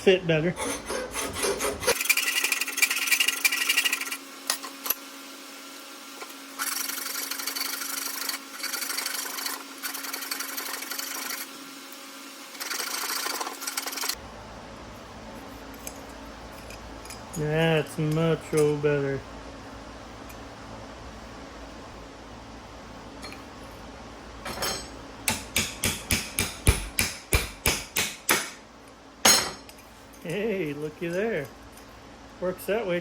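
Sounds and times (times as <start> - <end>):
metal file rasping on chain link: 0.6 - 4.2.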